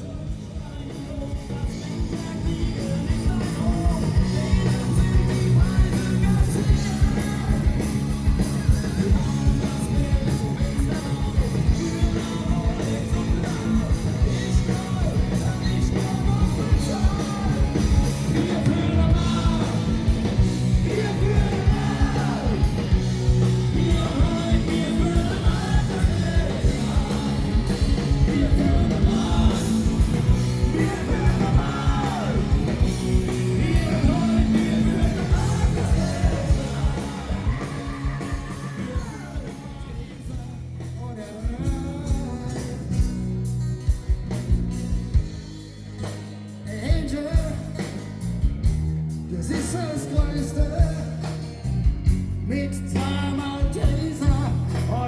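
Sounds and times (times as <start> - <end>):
person singing: 0.0 - 43.2
driving drum beat: 0.0 - 55.0
live rock band playing: 0.0 - 55.0.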